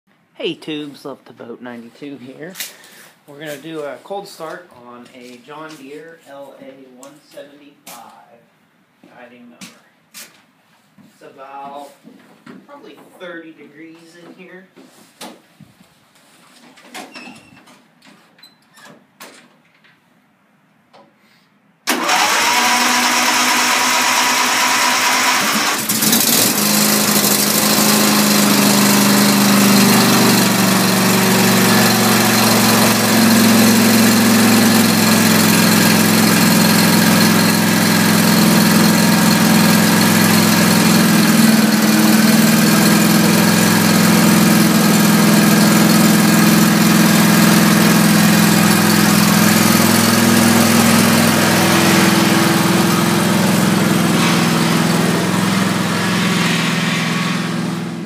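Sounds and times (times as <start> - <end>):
electric starter cranking: 21.9 - 58.0
mower engine running: 21.9 - 58.0.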